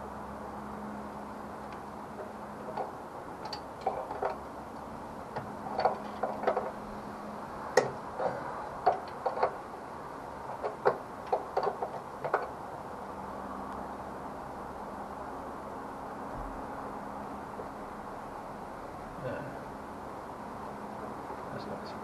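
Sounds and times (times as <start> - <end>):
hand tools clicking and knocking: 2.2 - 4.4, 5.3 - 6.8, 7.8 - 9.6, 10.5 - 12.6.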